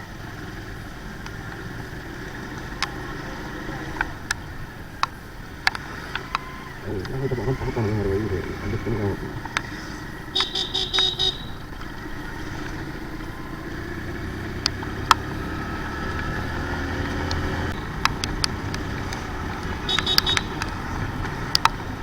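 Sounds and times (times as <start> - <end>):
motorcycle engine rumble: 0.0 - 22.0
sharp ticks: 4.0 - 13.9, 14.5 - 15.4, 16.0 - 22.0.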